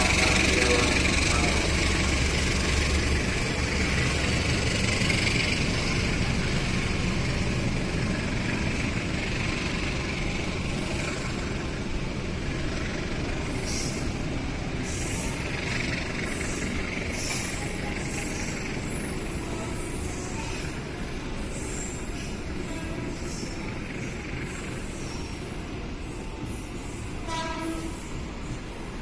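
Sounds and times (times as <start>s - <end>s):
train rumbling past: 0.0s - 29.0s.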